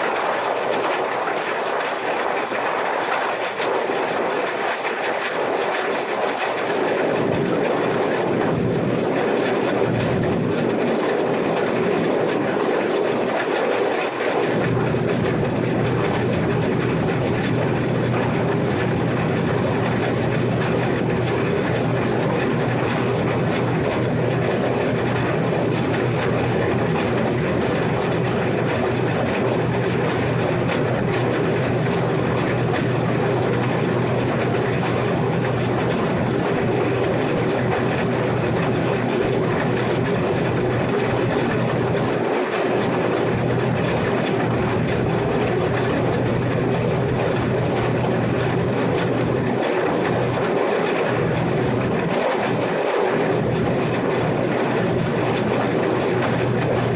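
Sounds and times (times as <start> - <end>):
combine harvester drone: 6.2 - 56.9.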